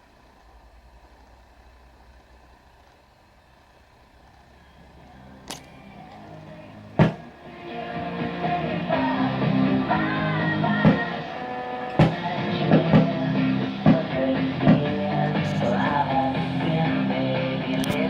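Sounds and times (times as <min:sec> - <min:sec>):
rock music from radio speaker: 0:04.5 - 0:18.0.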